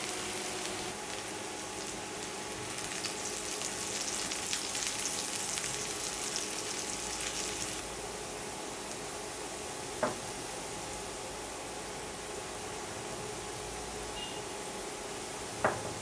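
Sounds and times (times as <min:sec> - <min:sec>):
spitting oil crackle: 0:00.0 - 0:07.8
food frying in hot oil: 0:00.0 - 0:11.3.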